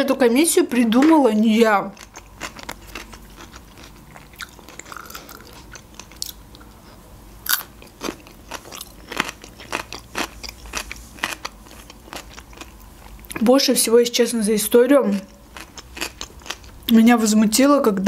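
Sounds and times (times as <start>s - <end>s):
crunchy cucumber bites and chewing: 2.0s - 6.8s, 7.4s - 13.4s, 15.5s - 16.8s.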